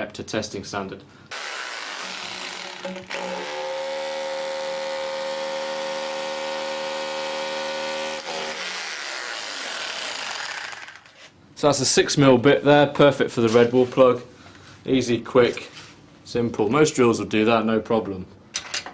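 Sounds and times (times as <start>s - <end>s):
hammer drill drilling: 1.3s - 11.2s.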